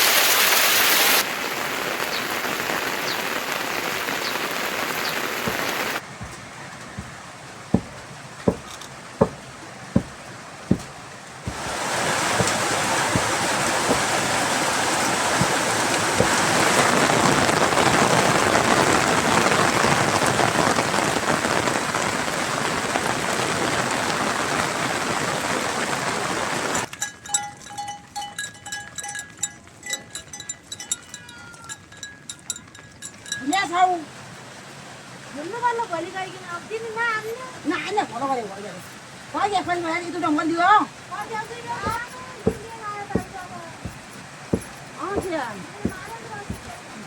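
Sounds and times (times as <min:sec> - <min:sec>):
heavy rain: 0:00.0 - 0:26.9, 0:33.7 - 0:47.0
separate raindrops: 0:00.0 - 0:47.0.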